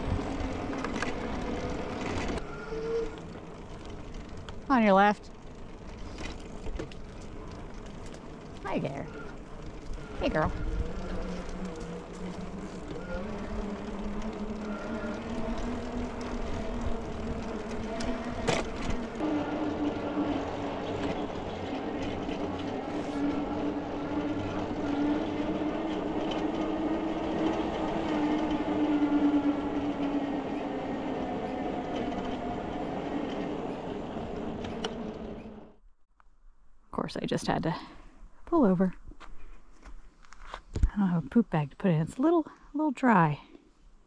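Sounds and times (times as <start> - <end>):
tyre and rattle noise: 0.0 - 4.7, 5.3 - 29.0
electric bike motor whining: 0.0 - 35.9
wind: 0.0 - 44.0.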